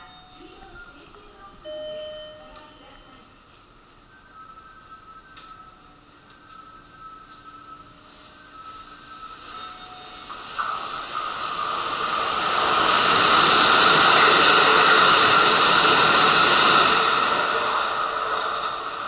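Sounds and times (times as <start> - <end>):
train rushing past: 7.2 - 19.0.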